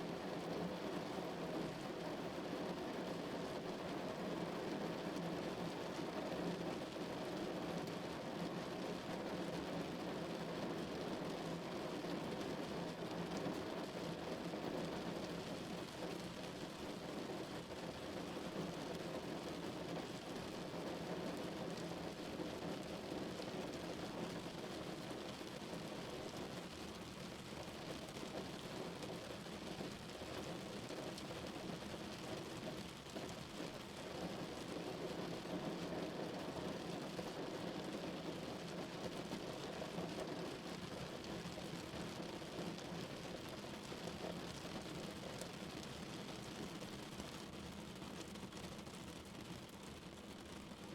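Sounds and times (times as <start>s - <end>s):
rain on a car roof: 0.0s - 50.9s.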